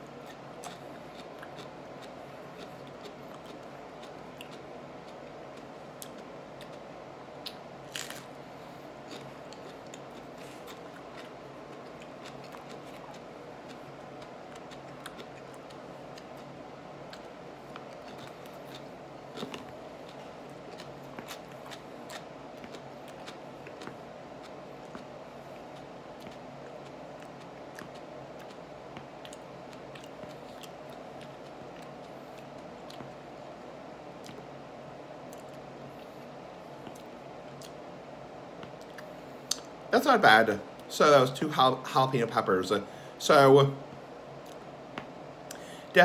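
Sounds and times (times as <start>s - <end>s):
low room hum: 0.0s - 46.0s
peppers crunching while chewed: 0.2s - 6.8s, 7.4s - 8.3s, 9.0s - 25.1s.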